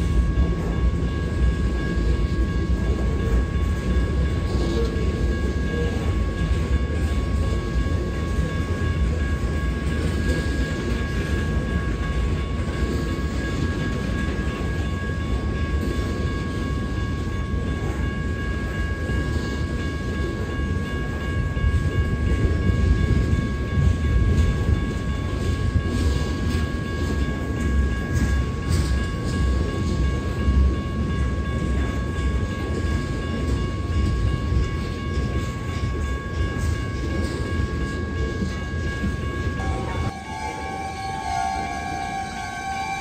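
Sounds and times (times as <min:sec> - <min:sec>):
high ringing tone: 0:00.0 - 0:43.0
train wheels rumbling on rail: 0:00.0 - 0:43.0.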